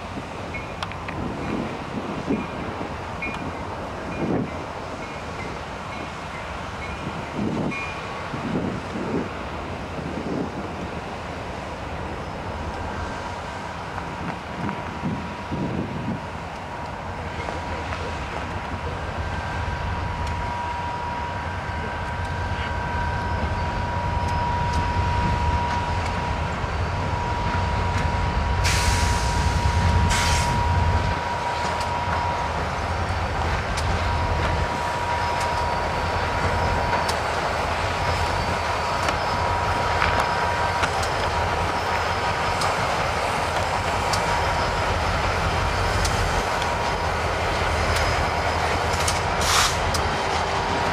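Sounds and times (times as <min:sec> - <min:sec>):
freight train cars rolling: 0:00.0 - 0:50.9
high wheel squeal: 0:18.8 - 0:50.9.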